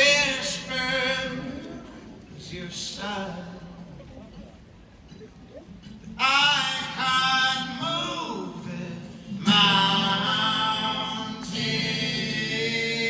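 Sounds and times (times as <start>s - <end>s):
men singing in close harmony: 0.0s - 1.8s, 6.2s - 13.0s.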